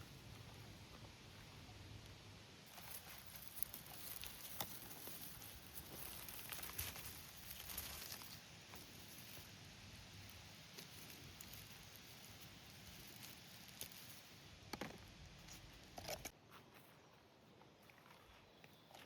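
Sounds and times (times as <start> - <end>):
faint background hiss: 0.0 - 18.9
soft clicks and rustles: 2.7 - 9.6.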